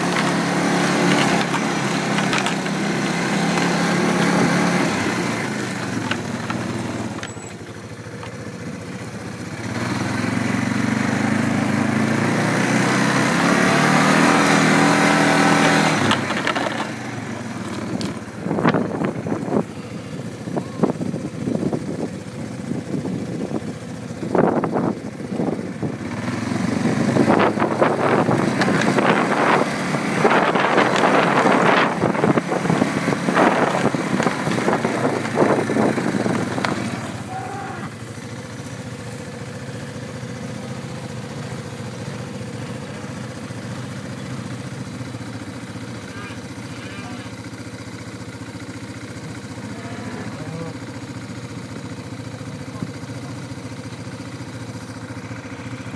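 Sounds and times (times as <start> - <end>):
small engine running: 0.0 - 55.9
irregular knocks and rattles: 1.0 - 4.4.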